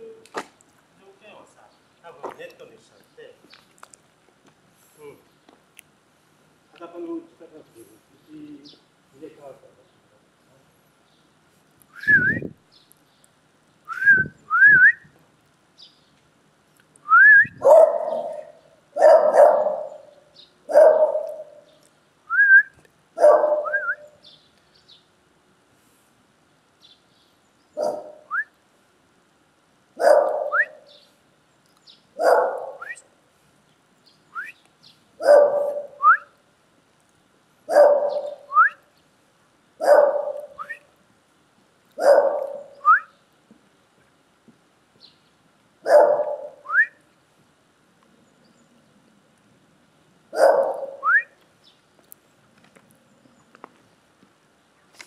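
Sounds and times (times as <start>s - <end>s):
dog barking: 17.6s - 20.1s, 20.7s - 21.7s, 23.2s - 23.8s, 27.8s - 28.3s, 30.0s - 30.9s, 32.2s - 33.0s, 35.2s - 36.0s, 37.7s - 38.5s, 39.8s - 40.7s, 42.0s - 42.8s, 45.8s - 46.7s, 50.3s - 51.1s.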